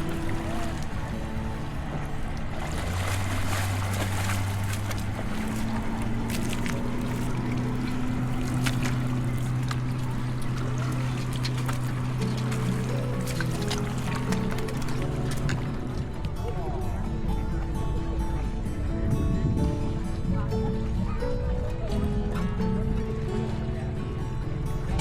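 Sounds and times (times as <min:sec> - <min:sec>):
boat motor droning: 0:00.0 - 0:25.0
surf: 0:00.0 - 0:25.0
wind: 0:00.0 - 0:25.0.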